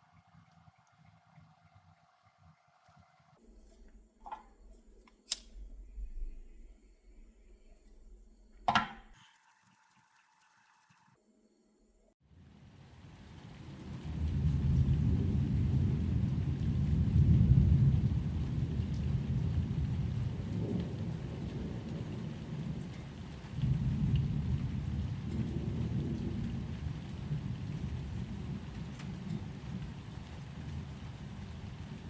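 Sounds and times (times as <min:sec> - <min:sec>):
rolling thunder: 0:12.8 - 0:32.0.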